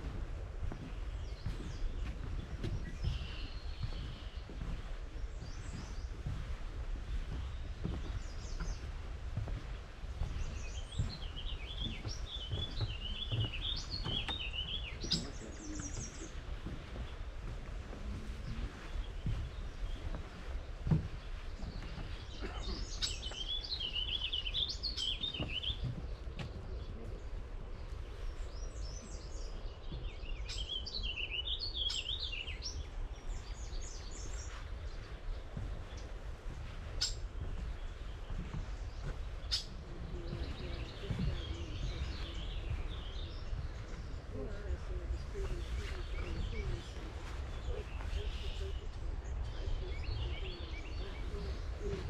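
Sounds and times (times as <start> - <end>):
soft low thumps: 0.0 - 52.0
steady low rumble: 0.0 - 52.0
songbird warbling: 10.2 - 17.3, 21.4 - 26.4, 27.8 - 36.2, 36.8 - 52.0.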